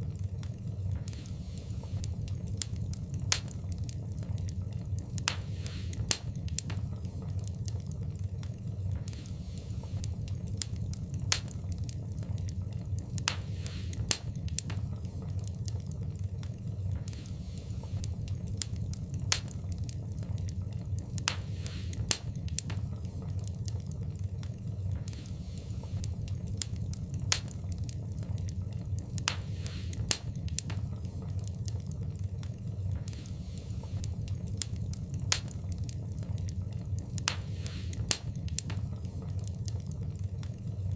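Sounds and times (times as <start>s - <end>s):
fire hissing softly: 0.0s - 40.9s
wood fire crackling and popping: 0.0s - 40.9s.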